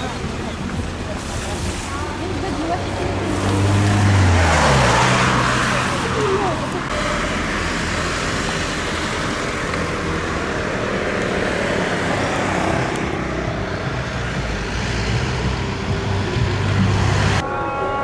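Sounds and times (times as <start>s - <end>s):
engine drone: 0.0s - 18.0s
road noise: 0.0s - 18.0s.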